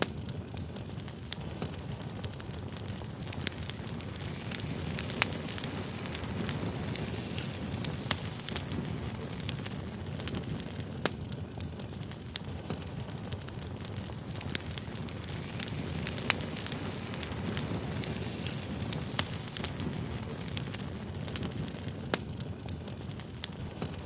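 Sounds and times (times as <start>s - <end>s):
fire crackling and popping: 0.0s - 24.0s
low rumble of flames: 0.0s - 24.0s.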